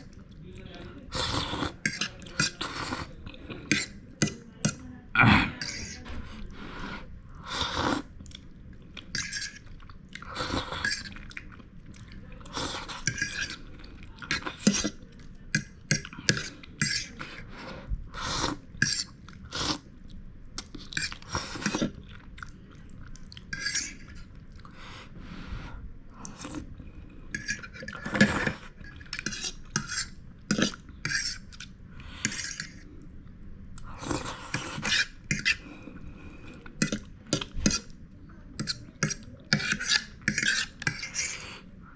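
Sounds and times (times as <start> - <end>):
cutlery clinking against a bowl: 1.8 - 2.7, 3.7 - 4.8, 9.1 - 9.6, 13.0 - 13.6, 14.3 - 17.2, 18.8 - 19.1, 23.5 - 24.2, 27.3 - 32.8, 34.5 - 35.6, 36.8 - 37.9, 38.6 - 41.4
chewing: 7.7 - 17.4, 18.3 - 24.8, 27.4 - 38.0.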